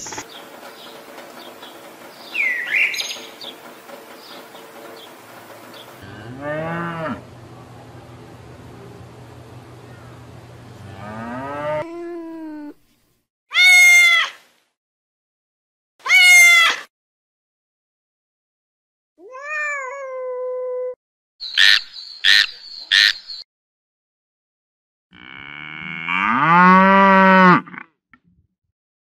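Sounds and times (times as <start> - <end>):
calf mooing: 6.0 - 7.3, 10.8 - 12.0, 25.2 - 27.8
kitten meowing: 19.2 - 21.0.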